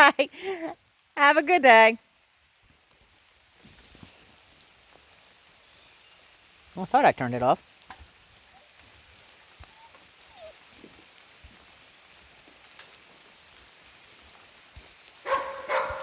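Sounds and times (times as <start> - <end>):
light rain pattering: 0.0 - 16.0
dog barking: 15.2 - 16.0.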